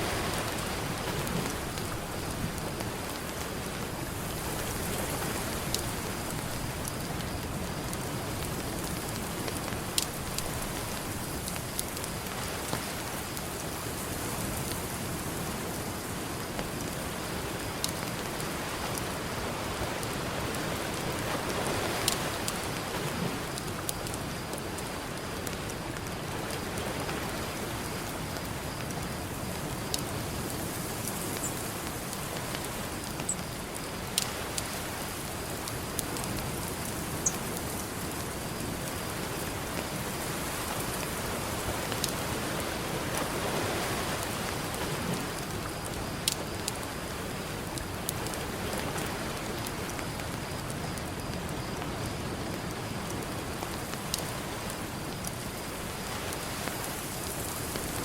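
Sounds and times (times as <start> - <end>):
ocean surf: 0.0 - 13.5, 26.0 - 46.2
campfire crackling and popping: 20.0 - 26.8.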